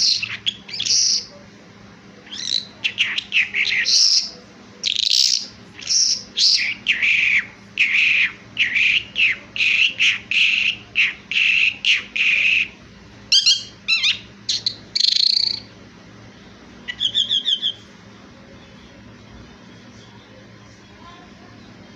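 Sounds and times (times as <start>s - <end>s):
skylark singing: 0.0s - 1.3s, 2.3s - 15.7s, 16.9s - 17.8s.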